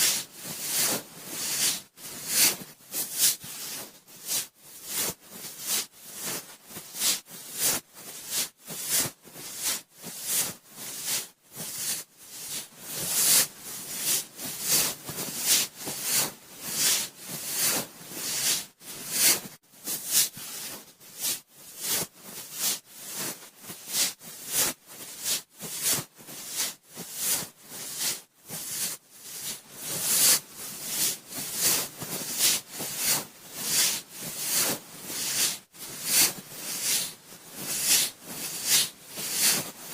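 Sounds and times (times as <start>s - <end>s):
cotton swab rubbing microphone: 0.0s - 39.9s.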